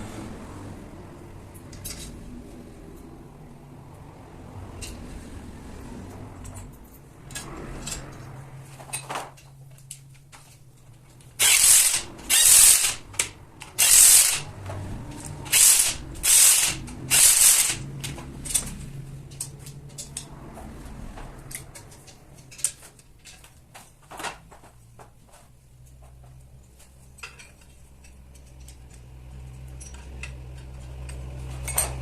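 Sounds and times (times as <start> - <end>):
harsh tool strokes: 11.4 - 14.5, 15.4 - 17.8.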